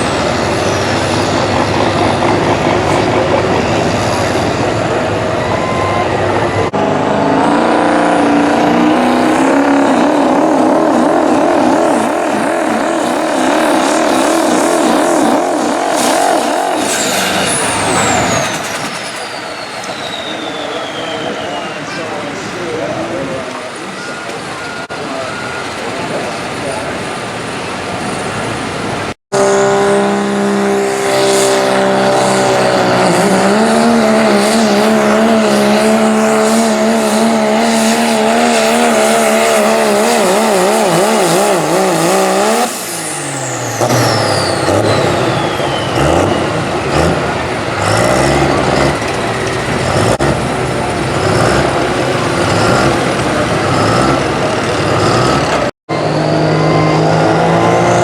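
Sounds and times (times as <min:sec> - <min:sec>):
diesel engine at high revs: 0:00.0 - 0:58.0
high whistle falling: 0:13.4 - 0:22.0, 0:42.0 - 0:46.7.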